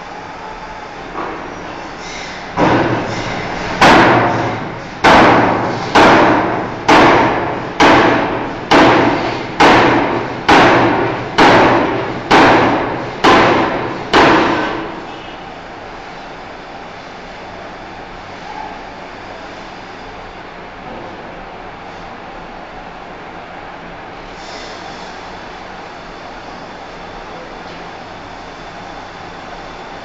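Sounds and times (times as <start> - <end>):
machinery hum: 0.0 - 30.0
hammer striking steel bar: 2.6 - 3.1, 3.8 - 14.9.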